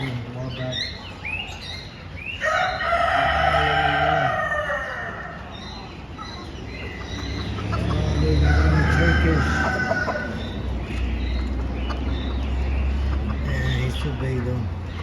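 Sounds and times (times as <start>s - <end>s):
rooster crowing: 2.4s - 5.5s, 8.2s - 10.5s.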